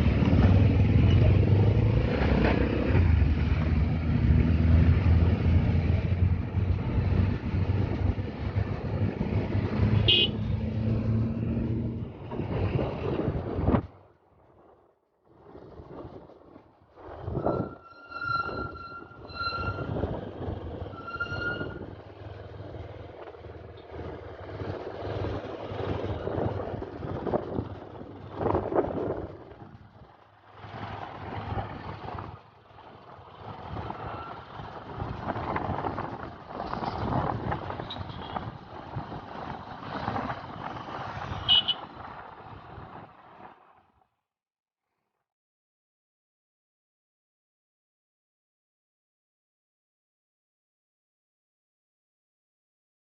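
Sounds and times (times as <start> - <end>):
road traffic noise: 0.0 - 14.7, 15.4 - 44.2
vehicle horn tooting: 10.0 - 10.4, 41.4 - 41.9.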